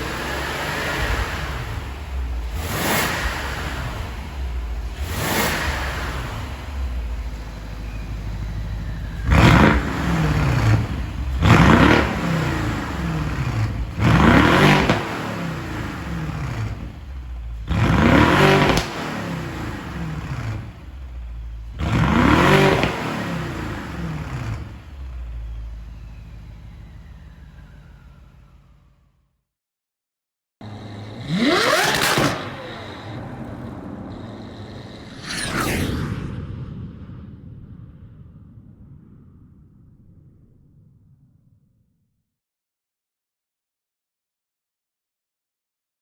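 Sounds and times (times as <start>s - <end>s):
car engine revving: 0.0s - 29.2s, 30.6s - 36.0s.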